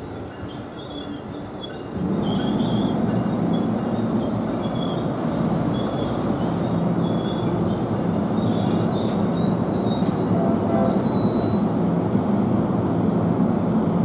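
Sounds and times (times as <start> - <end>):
train rumbling past: 0.0 - 14.0.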